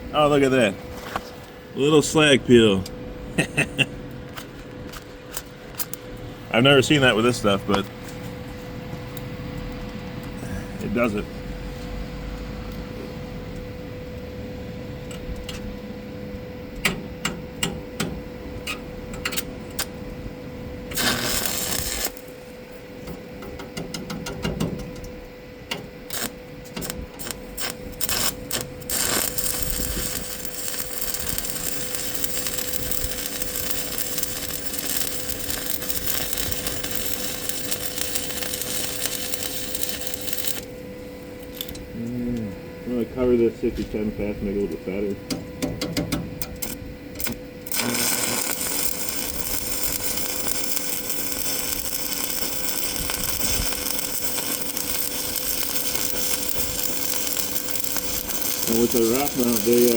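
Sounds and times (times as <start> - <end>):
welding arc crackling: 20.9 - 22.8, 25.8 - 40.8, 45.9 - 59.9.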